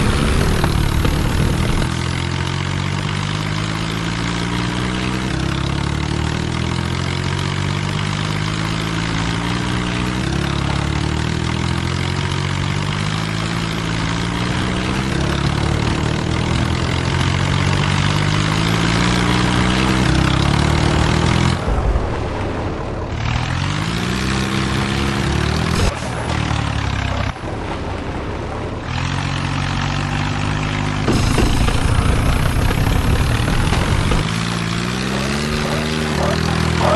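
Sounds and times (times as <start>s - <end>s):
diesel tractor engines revving: 0.0s - 36.9s.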